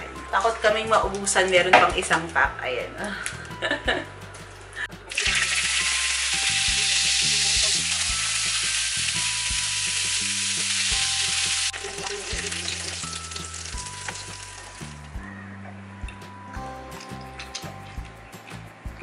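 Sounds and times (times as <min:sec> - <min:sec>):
hotdogs sizzling in a frying pan: 0:05.1 - 0:15.0.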